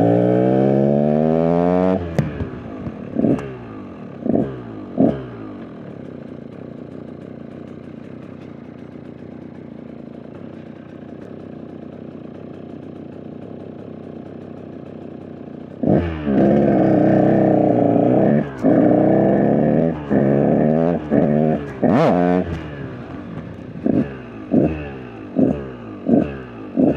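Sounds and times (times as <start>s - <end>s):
dirt bike engine revving: 0.0s - 5.9s, 15.7s - 26.9s.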